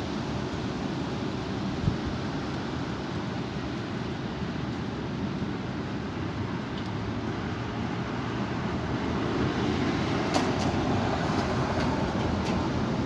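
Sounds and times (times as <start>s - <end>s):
strong wind buffeting microphone: 8.6s - 13.0s.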